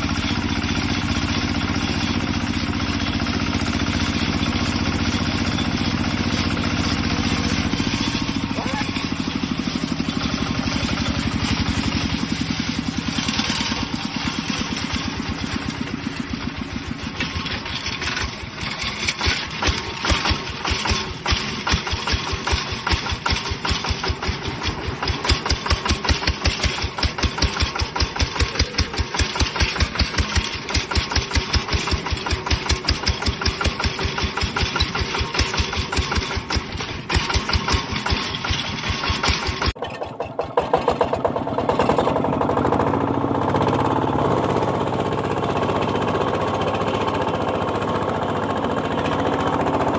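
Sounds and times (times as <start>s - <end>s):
diesel engine chugging: 0.0s - 49.9s.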